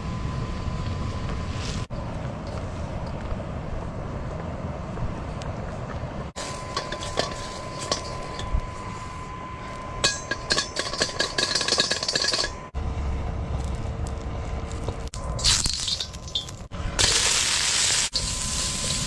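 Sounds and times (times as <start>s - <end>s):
steady low hum: 0.0s - 17.2s
metal cookware clinking: 6.7s - 8.5s, 10.0s - 12.7s.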